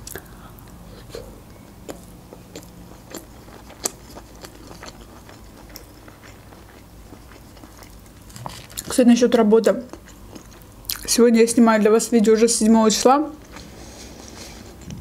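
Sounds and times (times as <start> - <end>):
chewing with wet mouth clicks: 1.6 - 8.9, 9.9 - 11.1.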